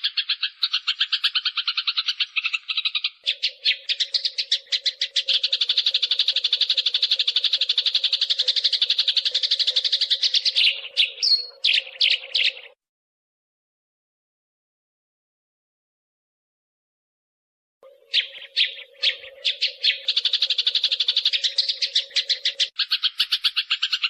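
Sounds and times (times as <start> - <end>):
sparrows chirping rapidly: 0.0 - 12.8, 17.8 - 24.0.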